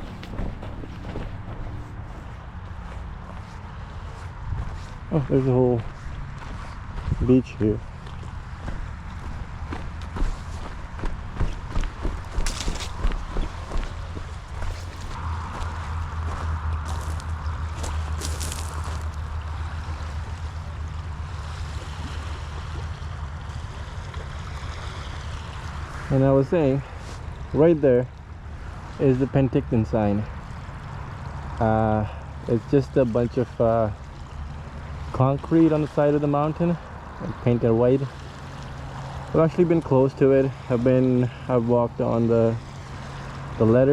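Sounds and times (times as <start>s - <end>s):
motorcycle engine running: 0.0s - 3.4s
wind noise on microphone: 0.0s - 20.6s
motorcycle engine rumbling: 0.0s - 21.3s.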